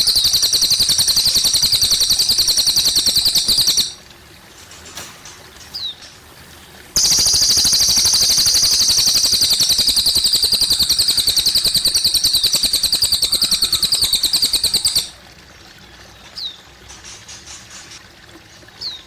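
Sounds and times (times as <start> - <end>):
bird singing rapid high trill: 0.0 - 4.0, 7.0 - 15.2
water trickling softly: 0.0 - 19.0.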